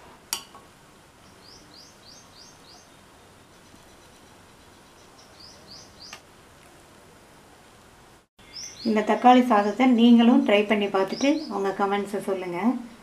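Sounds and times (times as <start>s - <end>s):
low background hiss: 0.0s - 13.0s
small bird chirping: 1.2s - 6.2s, 8.4s - 9.8s.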